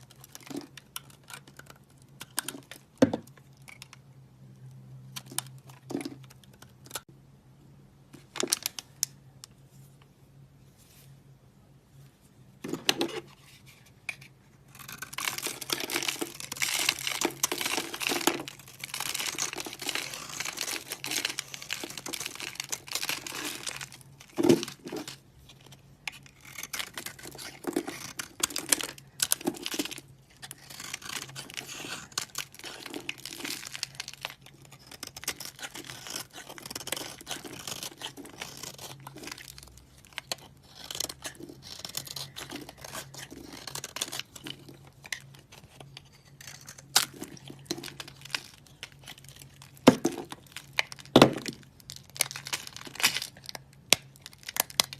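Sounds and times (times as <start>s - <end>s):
soap crunching by hand: 14.7s - 25.2s, 26.1s - 54.9s.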